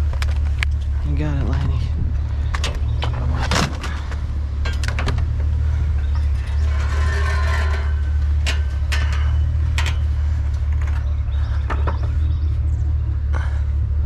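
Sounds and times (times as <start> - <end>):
vehicle engine idling: 0.0 - 14.0
scrap metal knocking and clattering: 2.4 - 12.5.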